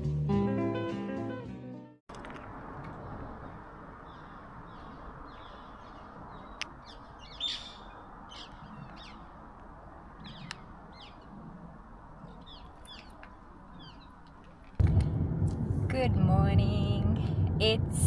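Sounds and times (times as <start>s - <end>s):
birds chirping and calling: 3.4s - 9.3s, 10.2s - 11.3s, 12.2s - 14.2s
low background rumble: 14.8s - 18.0s.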